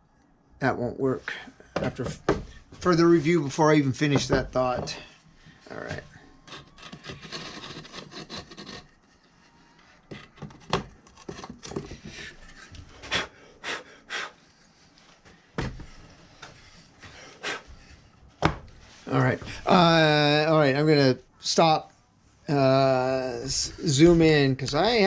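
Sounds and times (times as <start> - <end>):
knocks and clicks of mold parts: 18.4 - 18.8.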